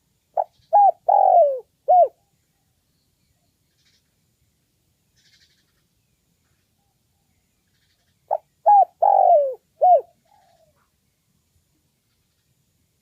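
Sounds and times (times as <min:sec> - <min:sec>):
dove cooing: 0:00.4 - 0:02.2, 0:08.3 - 0:10.9.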